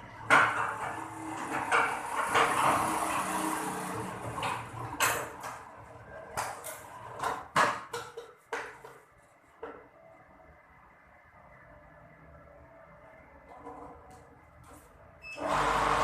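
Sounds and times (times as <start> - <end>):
dense noisy clatter: 0.0 - 7.9.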